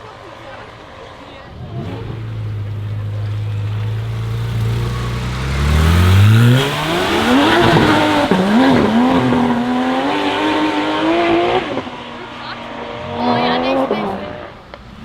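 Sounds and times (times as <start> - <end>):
wet tyres hissing on road: 0.0 - 9.8
sports car engine revving: 1.4 - 15.0.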